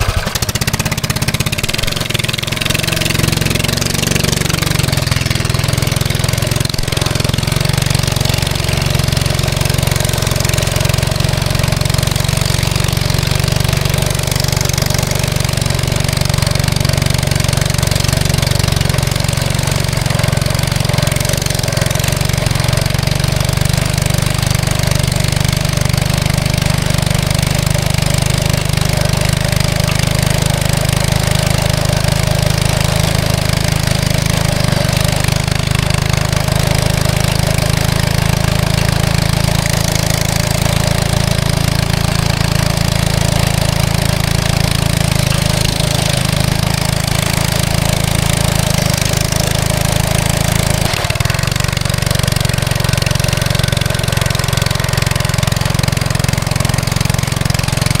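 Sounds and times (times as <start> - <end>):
mini bike engine running: 0.0 - 58.0.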